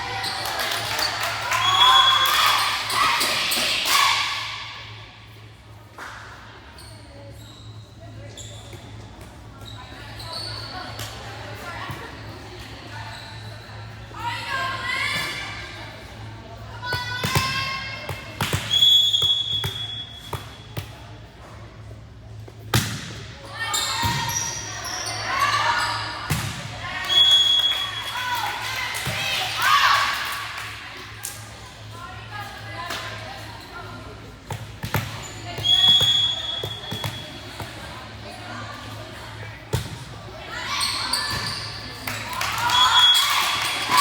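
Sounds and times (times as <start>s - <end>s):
referee's whistle: 18.7s - 20.3s, 27.1s - 28.2s, 35.6s - 37.3s.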